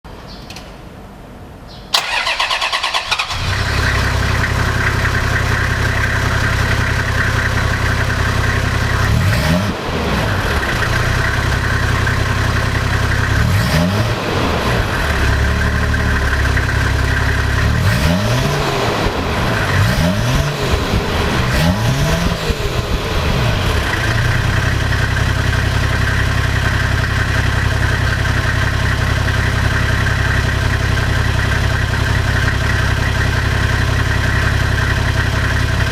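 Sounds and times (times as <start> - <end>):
engine idling: 1.9 - 35.9
engine revving: 2.0 - 25.6.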